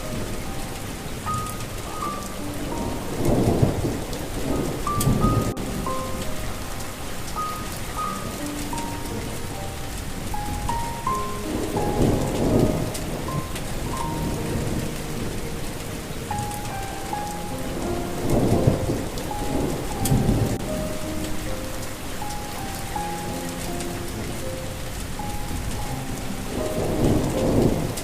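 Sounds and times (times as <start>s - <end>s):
slow melody of held notes: 0.0s - 28.0s
steady rain: 0.0s - 28.0s
thunder rolling: 0.0s - 28.0s.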